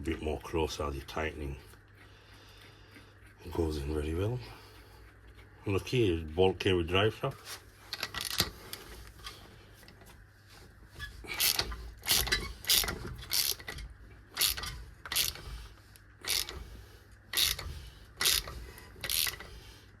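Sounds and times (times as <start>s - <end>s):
ratchet wrench clicking: 7.9s - 8.5s, 11.4s - 13.8s, 14.4s - 15.5s, 16.2s - 16.6s, 17.3s - 19.5s.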